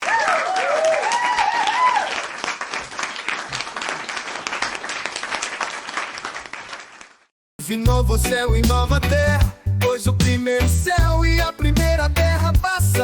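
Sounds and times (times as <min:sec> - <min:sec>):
cheering whoops: 0:00.0 - 0:02.3
crowd applauding: 0:00.0 - 0:07.3.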